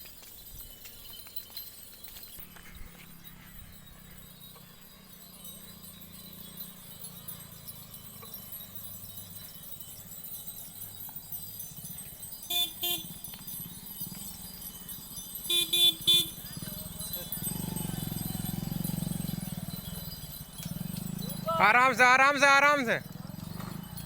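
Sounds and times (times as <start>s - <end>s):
vehicle horn beeps: 12.5s - 13.1s, 15.5s - 16.4s.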